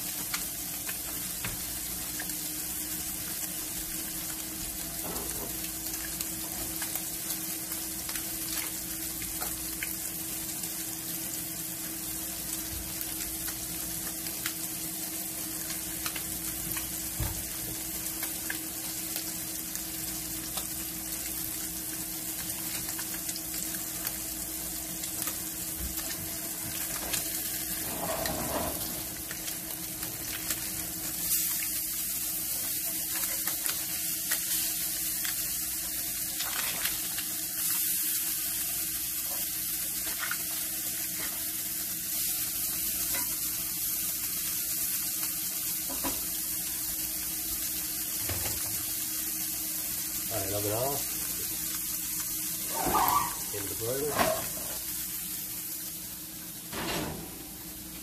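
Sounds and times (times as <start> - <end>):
fish sizzling in hot oil: 0.0 - 58.0
spatula scraping skillet: 27.8 - 29.1, 52.6 - 54.8.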